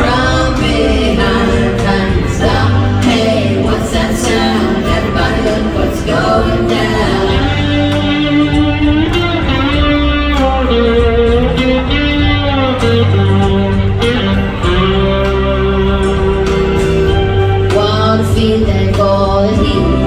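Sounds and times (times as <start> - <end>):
bass guitar: 0.0 - 20.0
drums: 0.0 - 20.0
electric guitar lead: 0.0 - 20.0.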